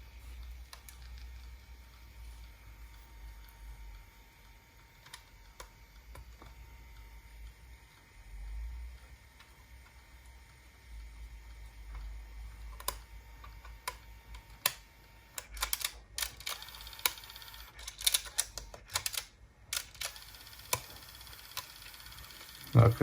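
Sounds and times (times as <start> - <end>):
tape mechanism clicking: 12.8 - 22.0.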